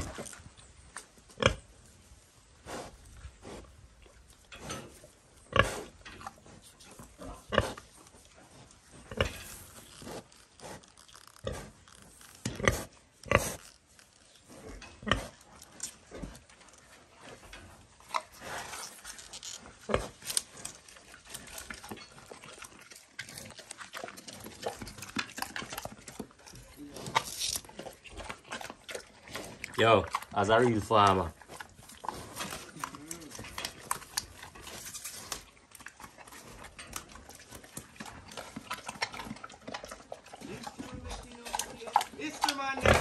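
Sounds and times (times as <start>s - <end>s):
animal grunting: 23.3s - 34.8s, 38.0s - 43.0s.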